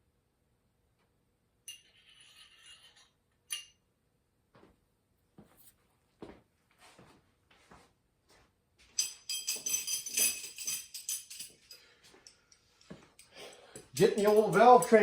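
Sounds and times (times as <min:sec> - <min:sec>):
small metal parts clinking: 0:08.9 - 0:15.0.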